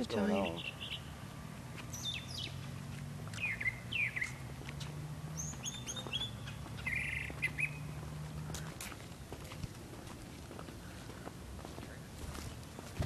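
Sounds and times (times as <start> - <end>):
birds chirping and calling: 0.0 - 1.1, 1.8 - 2.7, 3.3 - 8.8.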